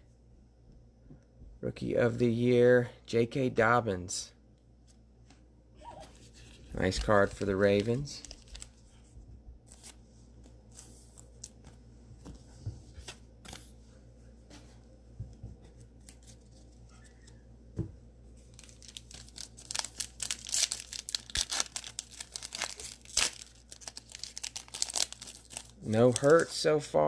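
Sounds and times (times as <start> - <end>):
cards being handled: 6.0 - 9.1, 9.7 - 13.8, 15.6 - 17.4
cellophane wrapper tearing and crinkling: 6.4 - 8.8, 18.4 - 26.6.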